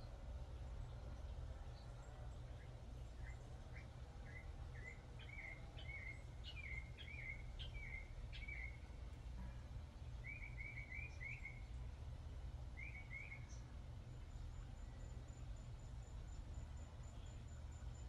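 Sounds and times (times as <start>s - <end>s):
low steady rumble: 0.0s - 18.0s
songbird chirping: 0.0s - 18.0s.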